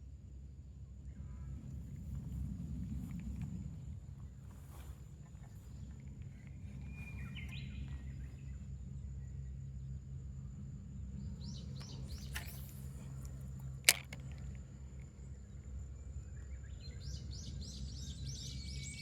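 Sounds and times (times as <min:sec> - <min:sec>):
low outdoor rumble: 0:00.0 - 0:19.0
small birds chirping: 0:01.1 - 0:10.1, 0:10.9 - 0:19.0
sharp click: 0:11.8 - 0:14.6.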